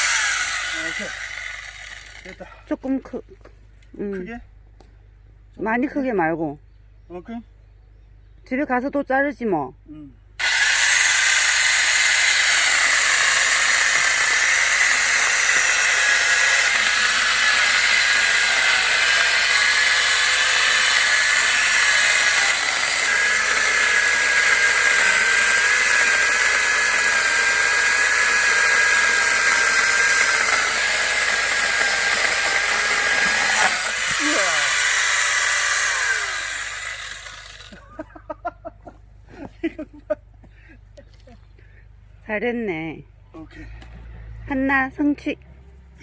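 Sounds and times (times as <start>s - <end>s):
angle grinder sawing through log: 0.0s - 2.6s, 10.4s - 37.9s.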